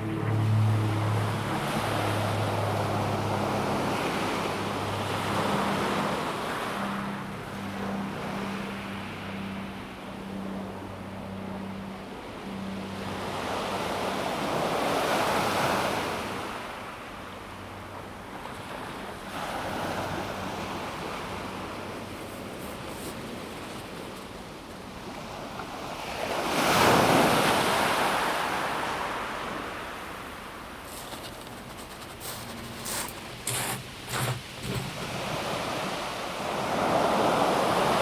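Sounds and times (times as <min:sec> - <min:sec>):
waves washing on pebble beach: 0:30.8 - 0:38.0.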